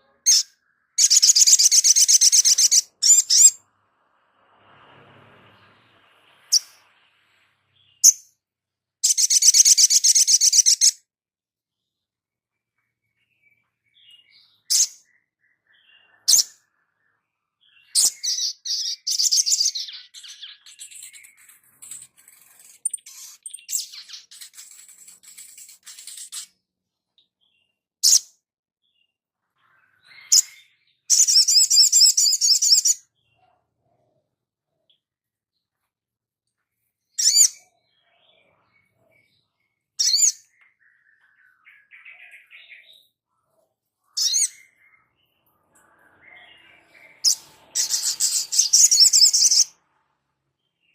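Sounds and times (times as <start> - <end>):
small songbird calling: 0.0 - 3.7, 9.0 - 11.1, 12.8 - 26.6, 27.2 - 33.4, 37.1 - 43.3, 44.0 - 49.8
small birds chirping: 0.0 - 50.9.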